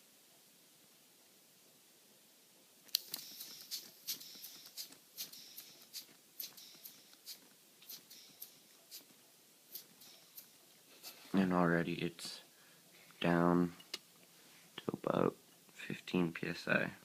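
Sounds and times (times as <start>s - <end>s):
pneumatic engine clicking and puffing: 3.0s - 9.1s, 9.7s - 11.3s.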